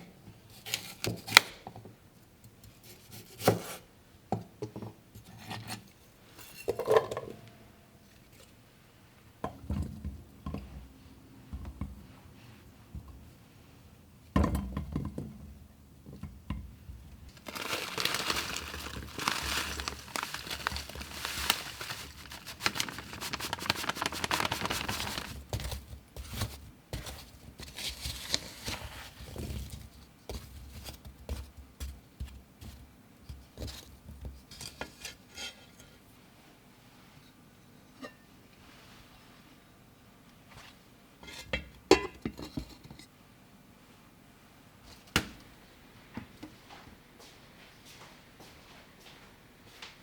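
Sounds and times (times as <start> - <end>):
crinkling and rustling: 17.3 - 35.2.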